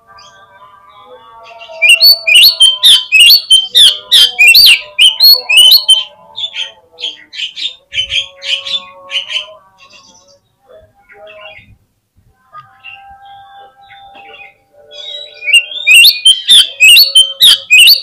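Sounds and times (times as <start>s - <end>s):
bird whistled song: 1.5s - 10.3s, 12.8s - 18.0s.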